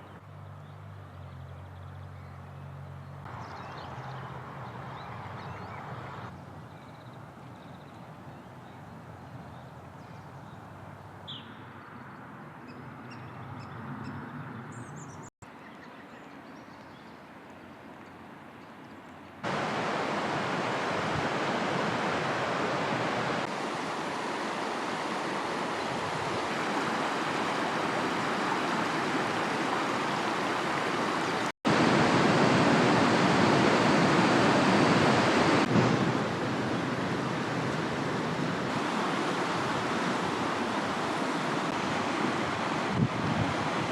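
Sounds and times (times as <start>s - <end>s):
rushing water or wind: 3.2s - 11.6s, 19.4s - 43.9s.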